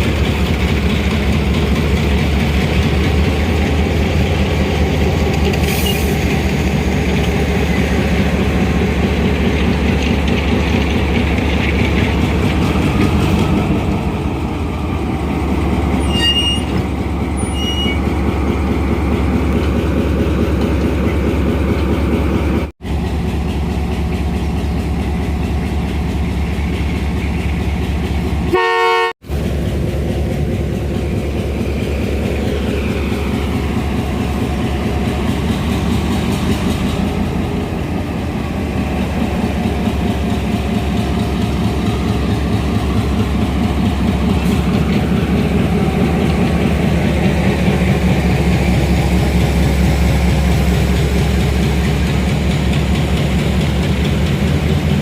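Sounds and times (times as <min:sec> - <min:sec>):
diesel engine running: 0:00.0 - 0:55.0
horn-like tone: 0:28.5 - 0:29.1.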